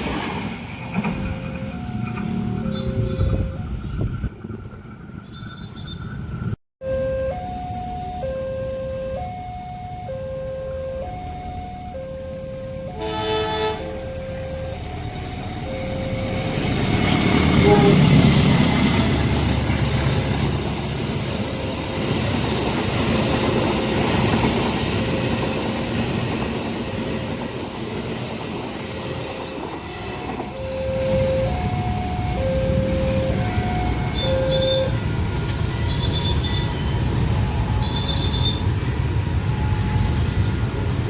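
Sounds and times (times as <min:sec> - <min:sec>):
train passing at speed: 0:00.0 - 0:41.0
two-pitch electronic beeps: 0:01.2 - 0:04.1, 0:06.8 - 0:13.0, 0:13.8 - 0:17.4, 0:30.6 - 0:35.0.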